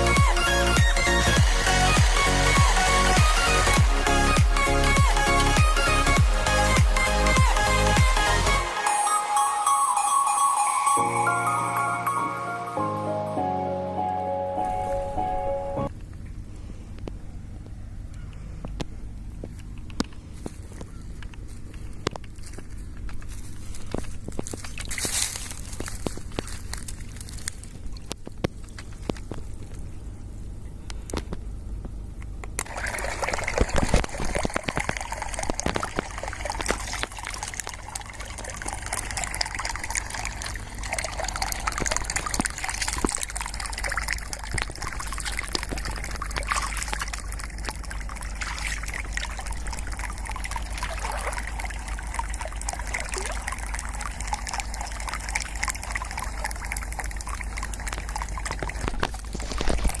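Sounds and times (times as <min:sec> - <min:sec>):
steady low hum: 0:14.6 - 1:00.0
water trickling and splashing: 0:20.4 - 0:29.9, 0:32.6 - 1:00.0
water drips: 0:32.5 - 1:00.0.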